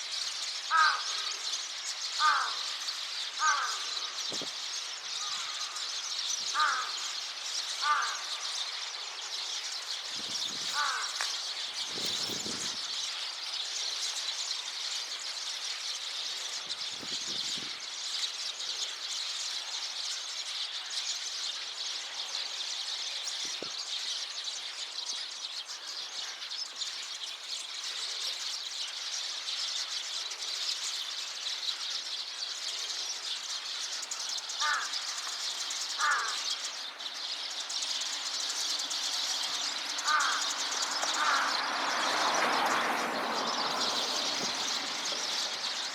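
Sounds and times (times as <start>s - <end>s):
sparrows chirping: 0.0s - 45.9s
lower-pitched bird calls: 2.2s - 2.7s, 3.4s - 4.5s, 5.2s - 8.6s, 9.9s - 13.0s, 34.0s - 45.9s.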